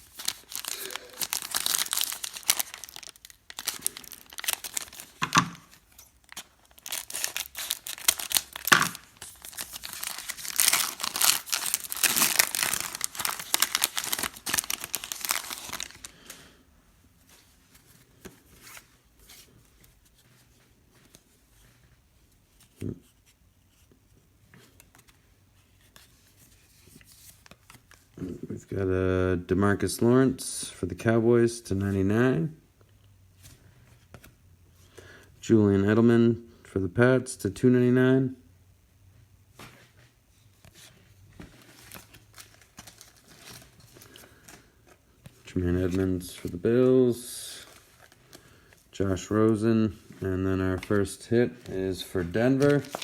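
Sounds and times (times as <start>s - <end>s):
plastic and foil crinkling: 0.0s - 16.6s, 40.7s - 53.0s
packaging being torn open: 0.1s - 16.1s, 52.5s - 53.0s.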